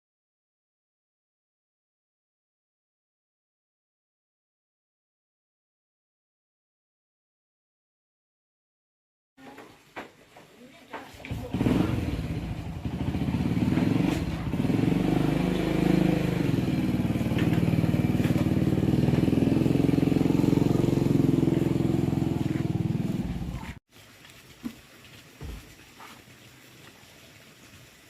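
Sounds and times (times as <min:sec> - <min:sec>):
engine running: 0:11.3 - 0:23.8.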